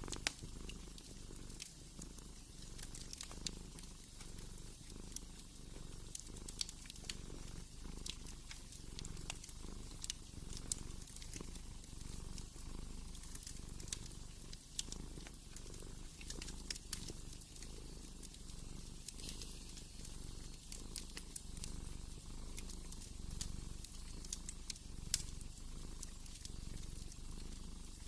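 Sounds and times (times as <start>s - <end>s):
cat purring: 0.0s - 28.0s
fireplace crackling and popping: 0.0s - 28.0s.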